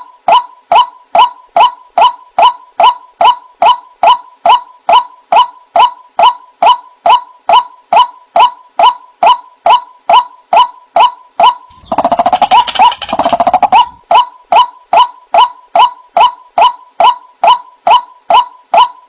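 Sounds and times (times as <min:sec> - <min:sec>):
waterhen calling: 0:11.4 - 0:14.2.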